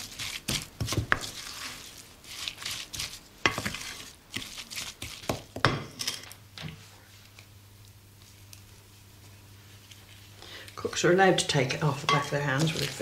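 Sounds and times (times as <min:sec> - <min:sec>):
spoon scraping wet mixture: 0:00.0 - 0:06.1, 0:12.0 - 0:13.0.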